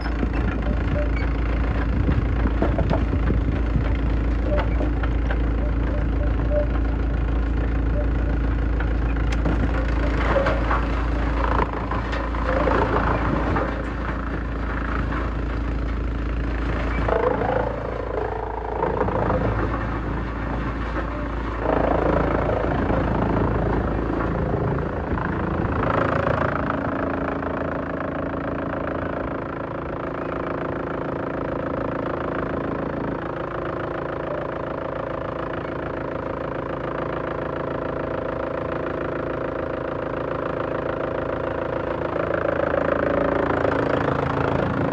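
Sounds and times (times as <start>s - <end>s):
wood shredder running: 0.0s - 44.9s
wood cracking: 8.8s - 24.4s.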